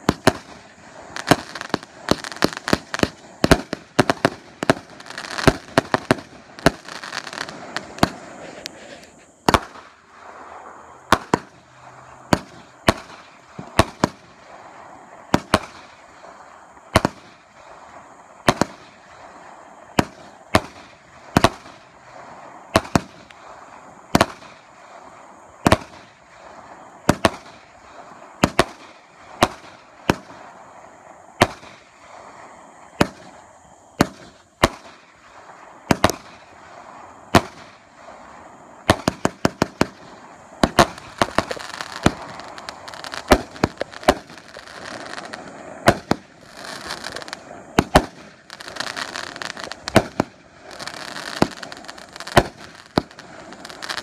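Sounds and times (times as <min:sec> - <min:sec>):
fireworks banging: 0:00.0 - 0:54.0
fireworks hissing: 0:00.0 - 0:54.0.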